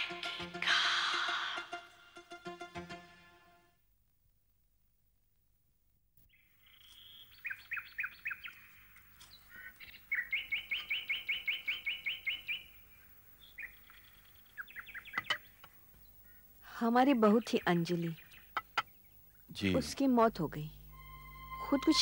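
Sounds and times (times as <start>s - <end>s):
small birds chirping: 6.2s - 20.0s.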